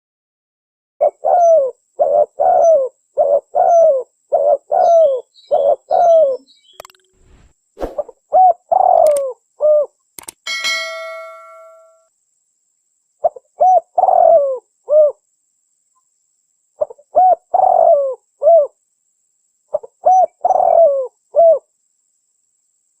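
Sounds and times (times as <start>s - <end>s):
dove cooing: 1.0s - 6.5s, 8.0s - 9.9s, 13.2s - 15.2s, 16.8s - 18.7s, 19.7s - 21.6s.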